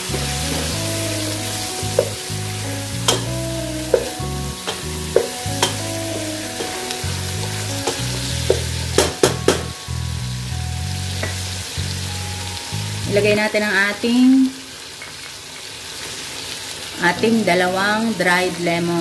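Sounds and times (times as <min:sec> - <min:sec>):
chicken and onions sizzling: 0:00.0 - 0:19.0
wooden spatula knocking on pot: 0:01.9 - 0:02.2, 0:03.1 - 0:06.9, 0:07.9 - 0:09.8.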